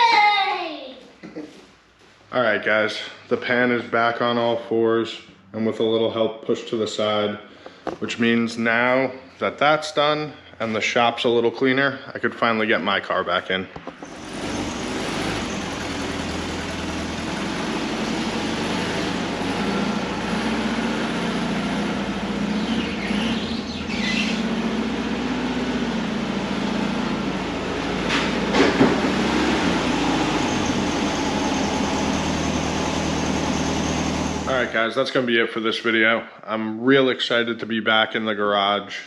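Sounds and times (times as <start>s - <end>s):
car engine running at low speed: 14.0s - 34.7s.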